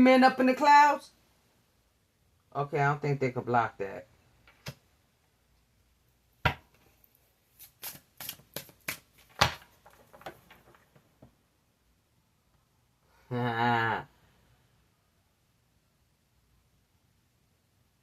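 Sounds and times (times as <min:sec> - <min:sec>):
cards snapping: 0:07.6 - 0:10.6
card taps and flicks: 0:07.8 - 0:10.6.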